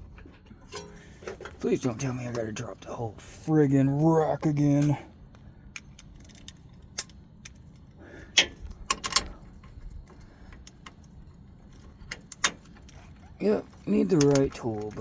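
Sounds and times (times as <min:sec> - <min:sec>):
hand tools clinking on metal: 0:00.3 - 0:03.0, 0:03.8 - 0:05.1.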